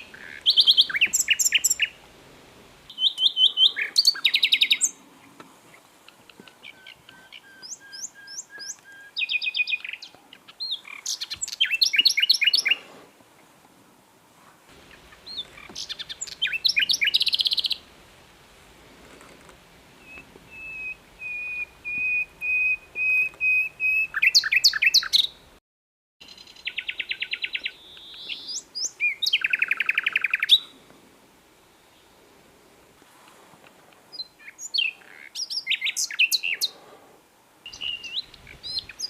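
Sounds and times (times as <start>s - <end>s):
nightingale singing: 0.0s - 2.1s, 2.9s - 5.3s, 6.0s - 12.9s, 14.8s - 17.9s, 20.0s - 25.5s, 26.2s - 30.7s, 34.1s - 36.8s, 37.6s - 39.0s.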